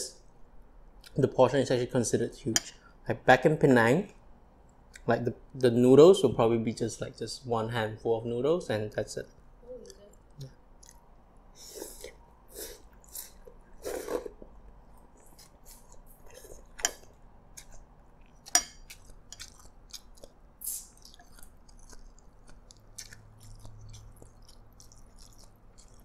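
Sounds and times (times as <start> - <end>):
person chewing food: 9.8 - 26.0.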